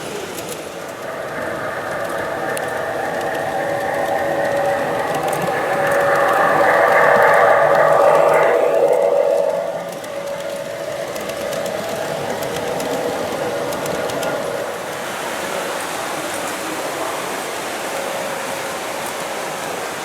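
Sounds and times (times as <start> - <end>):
model train rolling on track: 0.0 - 20.0
pitched tonal sound: 0.4 - 15.2.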